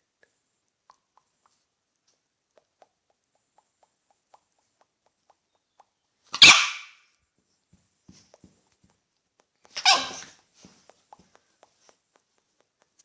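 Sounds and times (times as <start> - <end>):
dog barking: 6.3 - 7.0, 9.8 - 10.4.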